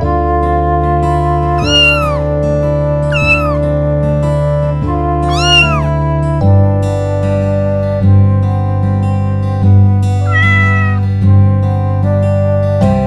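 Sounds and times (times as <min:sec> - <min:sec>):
music of held chords: 0:00.0 - 0:13.0
cat meowing: 0:01.6 - 0:02.3, 0:03.1 - 0:03.6, 0:05.3 - 0:06.0, 0:10.2 - 0:11.1.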